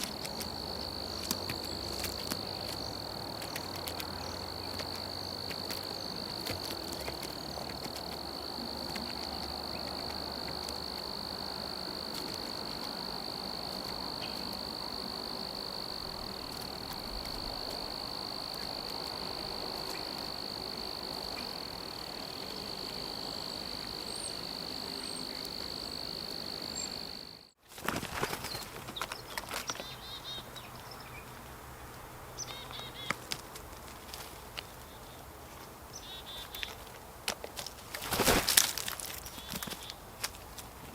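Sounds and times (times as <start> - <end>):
insect trilling: 0.0 - 27.5
faint outdoor hiss: 0.0 - 40.9.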